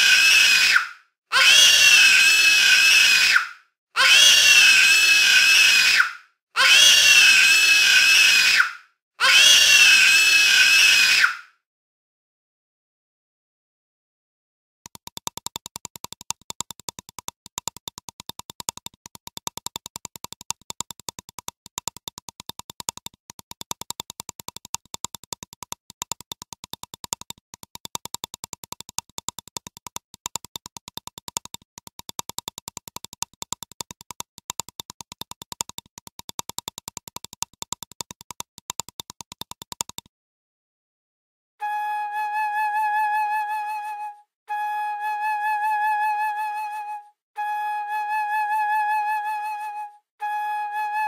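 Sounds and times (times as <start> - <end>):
fast sharp clicks: 14.9 - 40.1.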